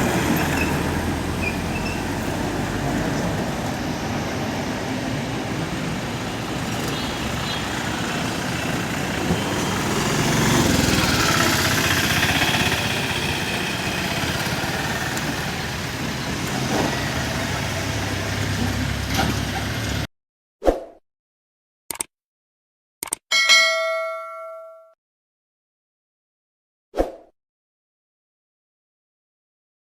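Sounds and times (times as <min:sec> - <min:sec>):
heavy diesel vehicle engine: 0:00.0 - 0:20.1.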